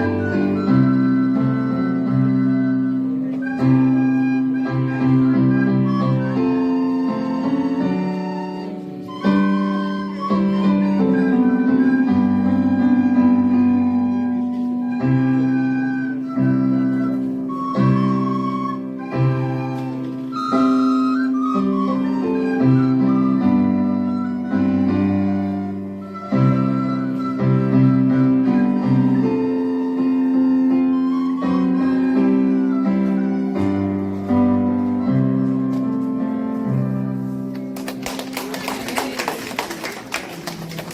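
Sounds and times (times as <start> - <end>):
slow keyboard chords: 0.0 - 38.0
people clapping: 37.5 - 40.9.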